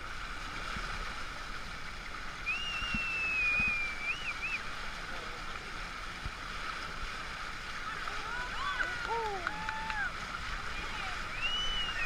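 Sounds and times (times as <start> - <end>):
water rushing along hull: 0.0 - 12.0
high clear whistle: 2.4 - 4.7, 11.3 - 12.0.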